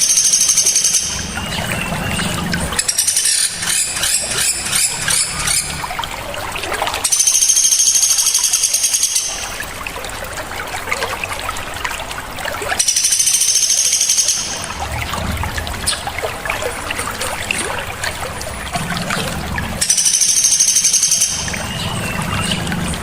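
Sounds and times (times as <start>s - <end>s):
songbird high-pitched trills: 0.0s - 5.7s, 7.1s - 9.6s, 12.8s - 14.7s, 19.8s - 22.8s
running water: 0.0s - 23.0s.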